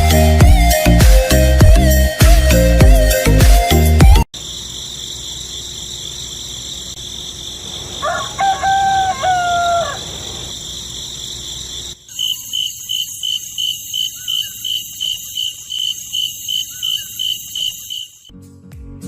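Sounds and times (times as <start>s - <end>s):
rooster crowing: 7.8s - 10.8s.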